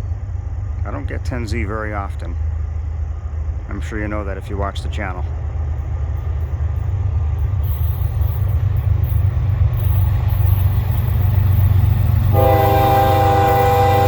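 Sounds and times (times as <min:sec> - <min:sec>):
diesel locomotive rumble: 0:00.0 - 0:14.0
train air horn chord: 0:12.3 - 0:14.0.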